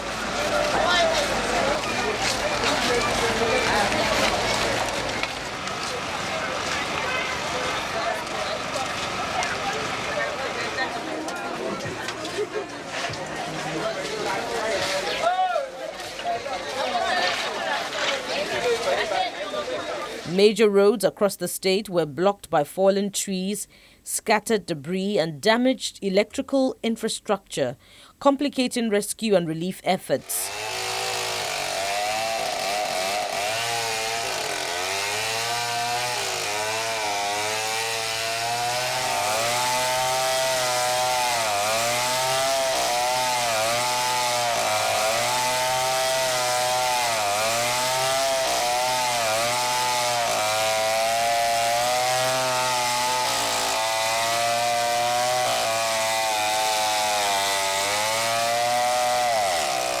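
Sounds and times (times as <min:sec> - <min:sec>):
chainsaw cutting wood: 0:00.1 - 0:12.4, 0:30.3 - 1:00.0.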